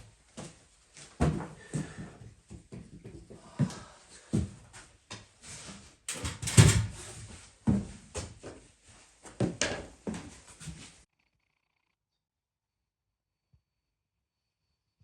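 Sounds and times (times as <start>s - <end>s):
objects knocking and clattering: 6.1s - 7.2s.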